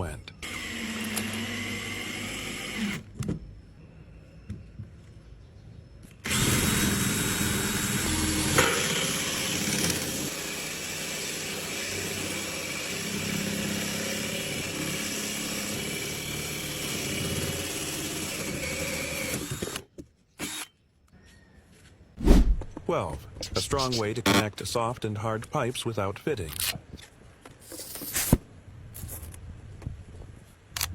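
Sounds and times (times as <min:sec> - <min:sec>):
electric drill boring wood: 0:00.4 - 0:03.1, 0:06.2 - 0:20.7.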